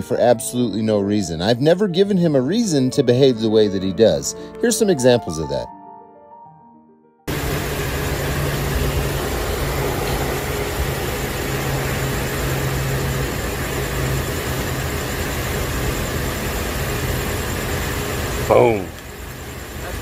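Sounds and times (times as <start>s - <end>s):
road noise: 7.3s - 20.0s
vehicle engine idling: 7.3s - 20.0s.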